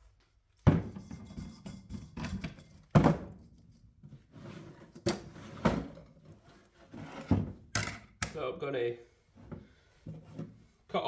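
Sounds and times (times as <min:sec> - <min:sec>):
tools set down on workbench: 0:02.2 - 0:03.4.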